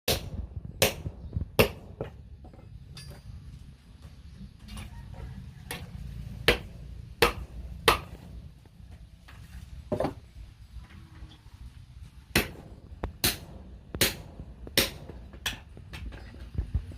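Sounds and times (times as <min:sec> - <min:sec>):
hammer striking steel on anvil: 0:06.5 - 0:08.2, 0:12.3 - 0:15.7.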